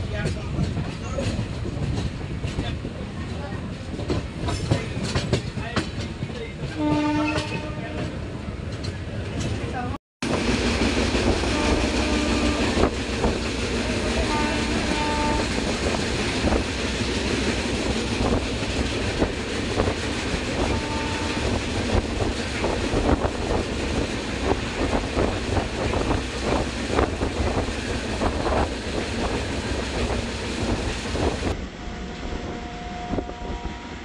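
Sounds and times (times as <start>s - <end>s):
wheels clicking over rail joints: 0.0s - 7.7s
train wheels rumbling on rails: 0.0s - 34.0s.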